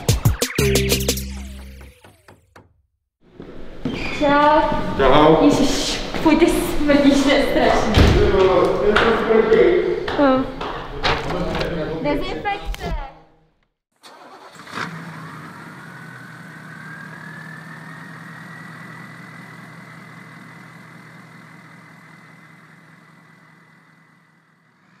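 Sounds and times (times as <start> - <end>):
high whine: 0.0 - 2.4
vehicle engine cranking: 14.0 - 25.0
engine running low hum: 14.2 - 25.0.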